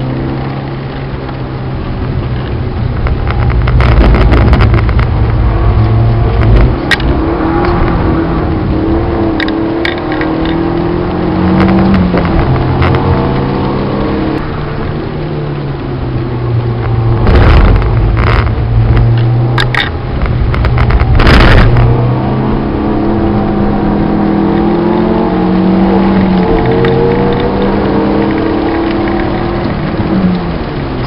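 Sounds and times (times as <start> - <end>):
car engine from inside cabin: 0.0 - 31.0
loud rushing noises: 2.1 - 10.6, 16.4 - 23.8.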